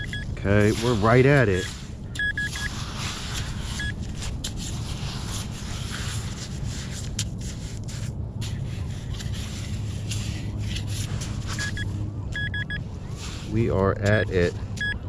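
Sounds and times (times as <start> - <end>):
scoop scraping wet sand: 0.0 - 11.9, 13.1 - 14.6
low background rumble: 0.0 - 15.0.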